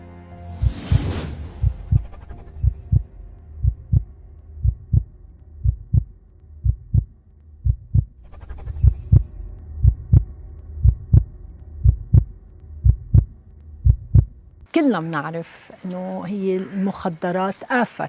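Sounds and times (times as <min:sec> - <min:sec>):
heartbeat thumps: 0:00.6 - 0:08.2, 0:08.8 - 0:14.4
high electronic tone: 0:01.8 - 0:04.0.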